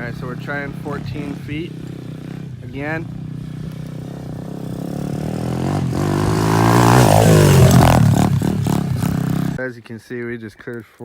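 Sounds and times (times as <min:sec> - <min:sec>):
dirt bike engine revving: 0:00.0 - 0:09.6.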